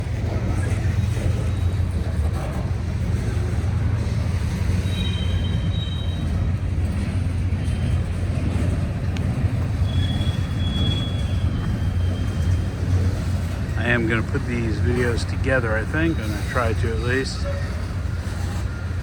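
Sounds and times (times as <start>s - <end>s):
freight train cars rumbling past: 0.0s - 19.0s
high-pitched wheel squeals: 0.6s - 2.0s, 4.5s - 6.6s, 9.6s - 14.0s.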